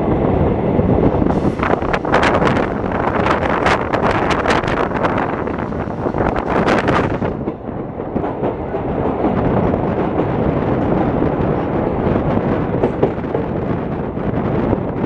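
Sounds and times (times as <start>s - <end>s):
train wheels rumbling on rail: 0.0s - 15.0s
wind: 0.0s - 15.0s.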